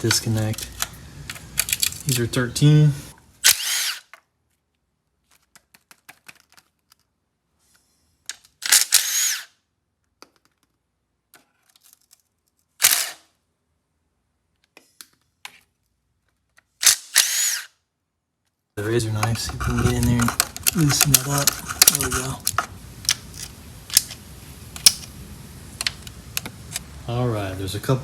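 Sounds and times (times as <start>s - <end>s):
clicks of socket and parts: 0.0s - 2.2s
cordless power tool spinning up: 3.4s - 4.1s, 8.7s - 9.5s, 12.8s - 13.2s, 16.8s - 17.7s.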